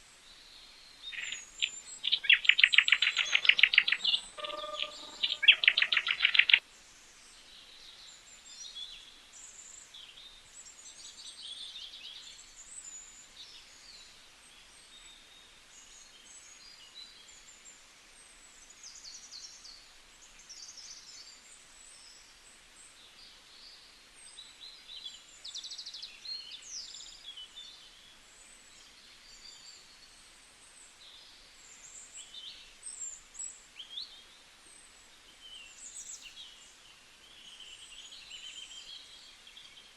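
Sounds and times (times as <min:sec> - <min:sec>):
birds chirping: 0:01.0 - 0:06.6
close loud bird call: 0:01.1 - 0:06.6.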